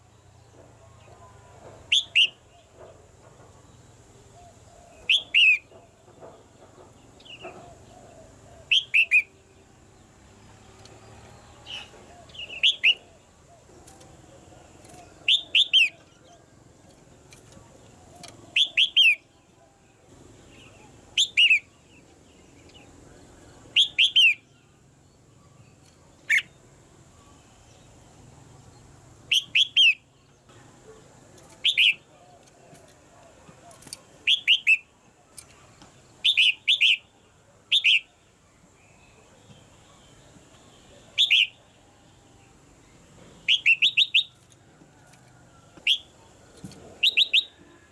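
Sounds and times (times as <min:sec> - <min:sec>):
bulbul calling: 0:01.9 - 0:02.7, 0:04.3 - 0:06.0, 0:07.1 - 0:09.4, 0:11.6 - 0:16.4, 0:17.3 - 0:19.4, 0:20.4 - 0:22.9, 0:23.7 - 0:24.6, 0:26.0 - 0:26.6, 0:29.2 - 0:30.1, 0:30.9 - 0:38.2, 0:39.0 - 0:41.8, 0:43.4 - 0:44.4, 0:45.8 - 0:47.8.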